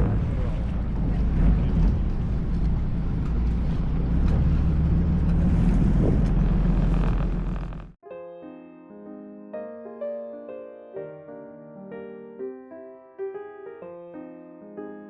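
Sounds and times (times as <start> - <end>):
wind buffeting microphone: 0.0 - 7.6
boat engine droning: 0.0 - 8.0.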